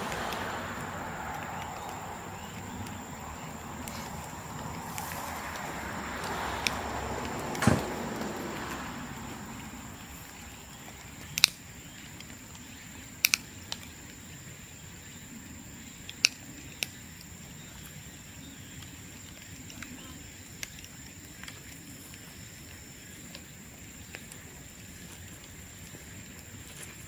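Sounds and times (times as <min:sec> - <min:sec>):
bonfire rushing: 0:00.0 - 0:11.3
bamboo popping in bonfire: 0:00.0 - 0:27.0.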